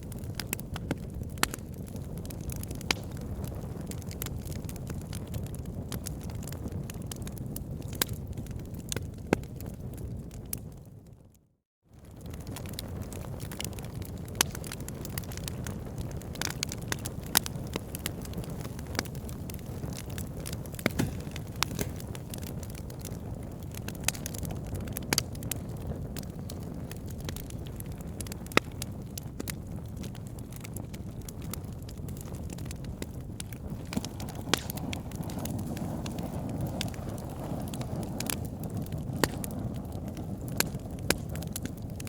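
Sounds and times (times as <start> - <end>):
wood fire crackling and popping: 0.0 - 11.2, 12.0 - 42.0.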